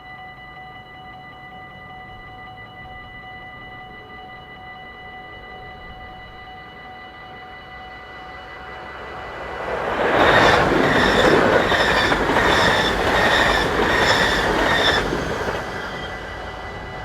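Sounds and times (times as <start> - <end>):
level crossing warning bells: 0.0 - 17.0
train wheels clattering: 9.5 - 16.8.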